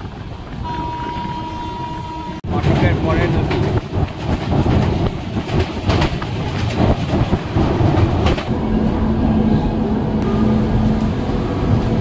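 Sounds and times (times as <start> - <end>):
train coaches rumbling on track: 0.0 - 12.0
wheels knocking over rails: 2.6 - 8.5.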